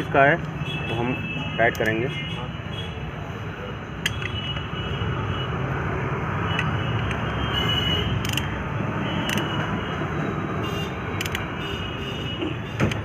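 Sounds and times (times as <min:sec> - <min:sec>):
traffic rumble: 0:00.0 - 0:13.0
workshop noise: 0:00.0 - 0:13.0
wrench clicking: 0:08.2 - 0:08.6, 0:09.2 - 0:09.6, 0:11.2 - 0:11.5.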